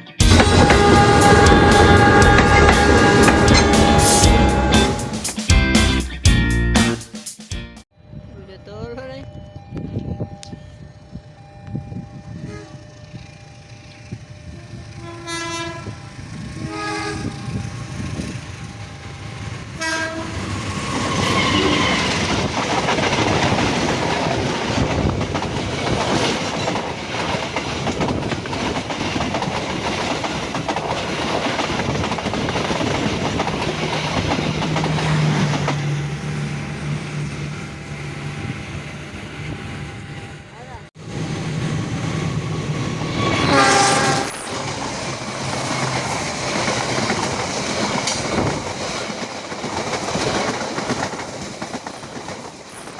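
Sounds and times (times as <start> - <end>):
locomotive horn blasts: 0.2 - 5.3, 14.7 - 17.7, 19.6 - 20.5, 43.2 - 44.6
train wheel clatter: 0.2 - 5.4, 11.0 - 40.4, 41.3 - 52.9.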